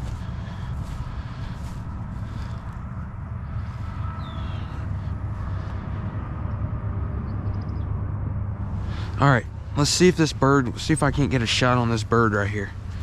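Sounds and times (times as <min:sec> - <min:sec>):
low outdoor rumble: 0:00.0 - 0:13.0
faint bird chirp: 0:03.4 - 0:08.0.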